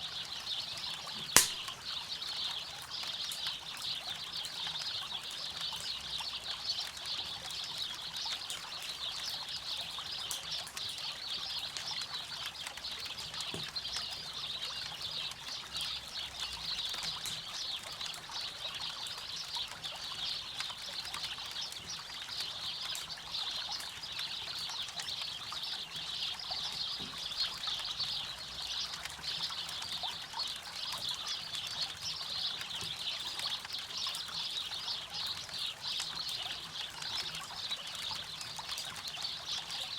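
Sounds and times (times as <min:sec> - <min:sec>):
campfire crackling: 0:01.2 - 0:01.9.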